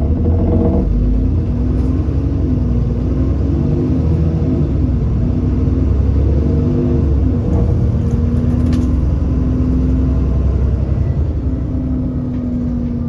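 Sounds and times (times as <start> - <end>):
bus diesel engine running: 0.0 - 13.0.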